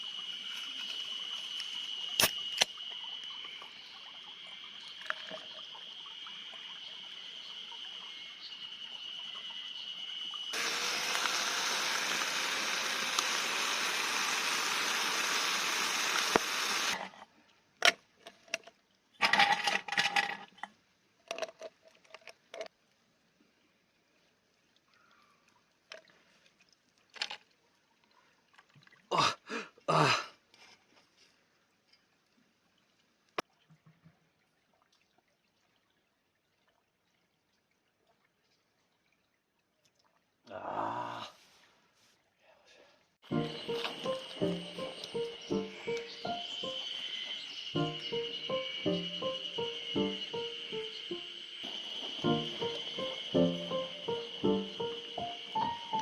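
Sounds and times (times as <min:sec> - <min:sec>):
mountain stream flowing: 0:10.5 - 0:17.1.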